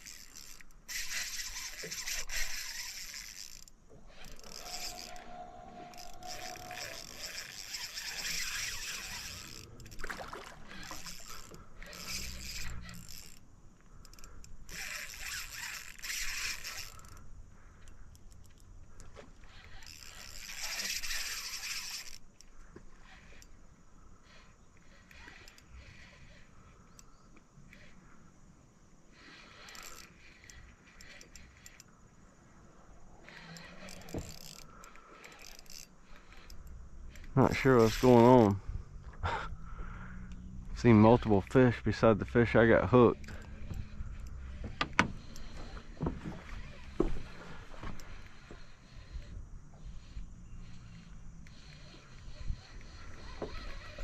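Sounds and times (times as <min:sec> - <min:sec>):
fishing reel being cranked: 0:00.0 - 0:28.3, 0:29.1 - 0:54.0
faint clicks and rattles: 0:29.2 - 0:32.1.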